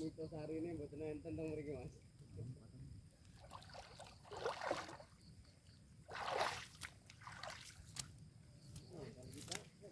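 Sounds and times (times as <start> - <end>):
water splashing: 3.4 - 5.2, 6.0 - 8.1.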